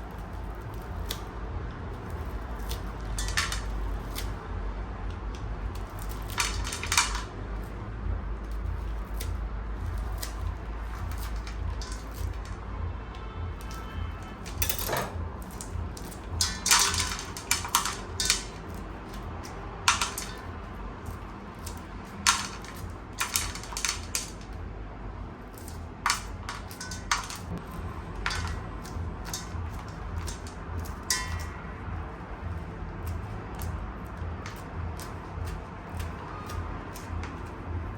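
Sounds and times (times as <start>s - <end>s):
quiet music with low beat: 0.0s - 37.9s
pots and utensils clattering: 2.6s - 4.4s, 5.8s - 7.3s, 10.1s - 12.6s, 13.6s - 19.2s, 19.9s - 24.6s, 25.6s - 31.6s.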